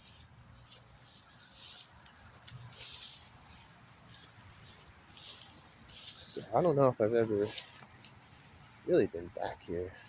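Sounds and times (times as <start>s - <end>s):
soft rustles: 0.0s - 8.6s
insects trilling: 0.0s - 10.0s.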